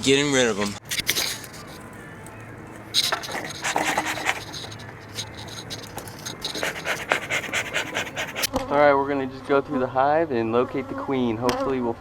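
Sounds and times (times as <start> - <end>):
scratching and clicking handling noises: 0.8 - 8.5.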